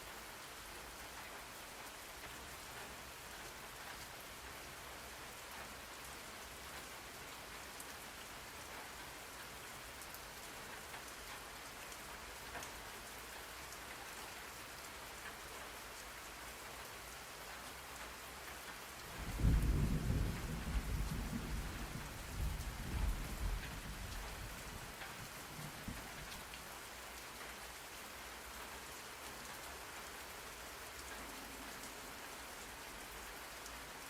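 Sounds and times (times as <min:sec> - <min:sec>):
steady rain falling: 0:00.0 - 0:34.0
thunder rumbling: 0:19.2 - 0:25.0.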